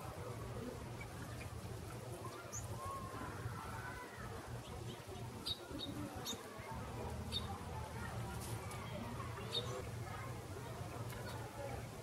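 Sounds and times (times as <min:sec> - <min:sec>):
small bird chip calls: 0:00.9 - 0:03.3, 0:04.6 - 0:06.5, 0:07.2 - 0:07.6, 0:09.4 - 0:09.9.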